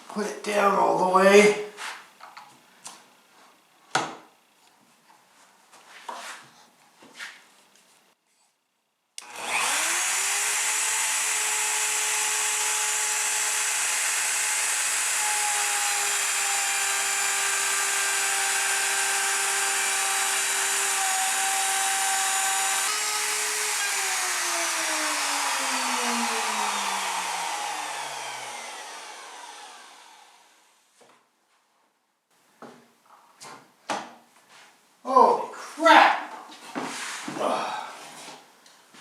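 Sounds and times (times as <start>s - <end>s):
electric power tool whining: 9.2s - 30.7s.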